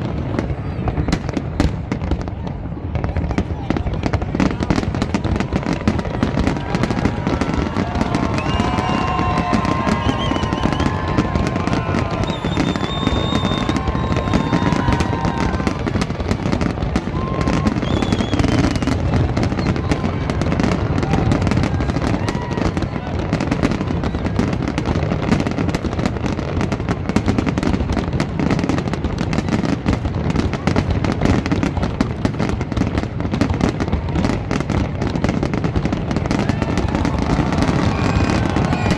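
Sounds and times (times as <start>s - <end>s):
people's voices: 0.0s - 27.1s, 28.1s - 38.9s
fireworks bangs and crackles: 0.0s - 38.9s
fireworks whistles: 3.0s - 28.7s, 33.6s - 38.9s.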